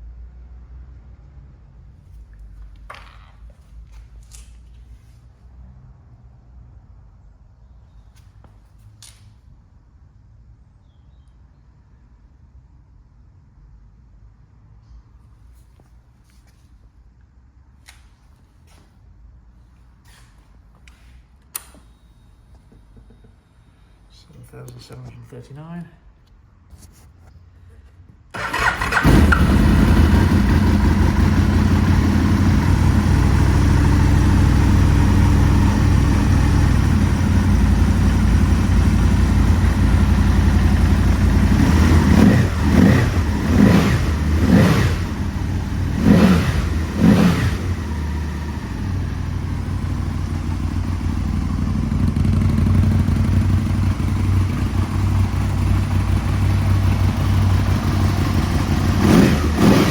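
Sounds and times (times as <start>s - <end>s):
motorcycle engine idling and revving: 28.4s - 59.9s.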